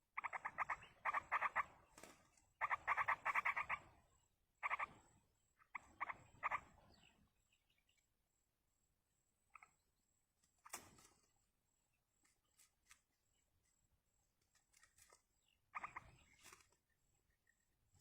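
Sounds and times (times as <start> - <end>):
bird chattering calls: 0.2 - 1.9, 2.6 - 4.0, 4.6 - 5.0, 5.6 - 7.2, 15.4 - 16.4.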